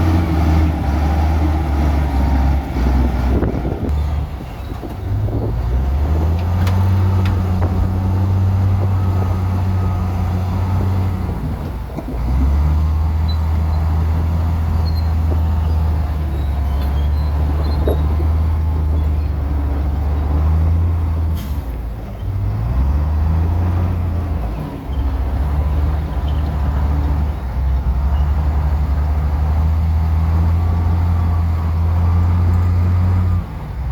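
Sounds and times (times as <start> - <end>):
heavy diesel engine revving: 0.0 - 33.9.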